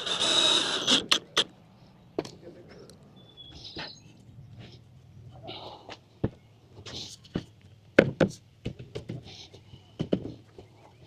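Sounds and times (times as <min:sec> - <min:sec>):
thin squeak: 0:00.0 - 0:01.5.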